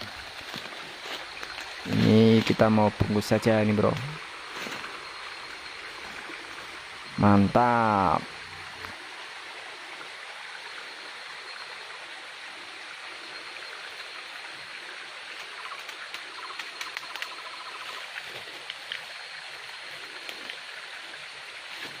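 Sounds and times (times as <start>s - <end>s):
flowing water rushing: 0.0s - 22.0s
sharp clicks: 15.4s - 17.4s.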